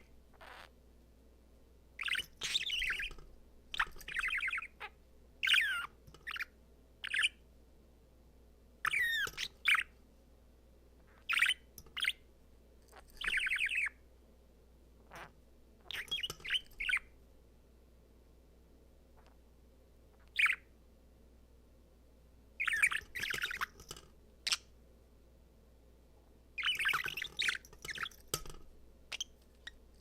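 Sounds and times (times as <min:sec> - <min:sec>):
budgerigar chirping and warbling: 0:00.4 - 0:00.7, 0:02.0 - 0:03.2, 0:03.8 - 0:07.4, 0:08.9 - 0:09.9, 0:11.2 - 0:12.2, 0:13.2 - 0:14.0, 0:15.9 - 0:17.0, 0:20.3 - 0:20.6, 0:22.6 - 0:23.7, 0:26.6 - 0:28.5.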